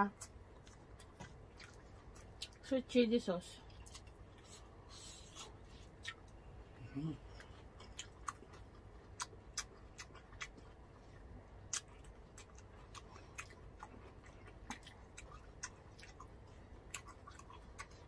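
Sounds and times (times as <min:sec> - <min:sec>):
faint low hum: 0:00.0 - 0:18.0
chewing food: 0:00.1 - 0:02.7, 0:03.6 - 0:18.0
mouth clicks and smacks: 0:11.6 - 0:18.0.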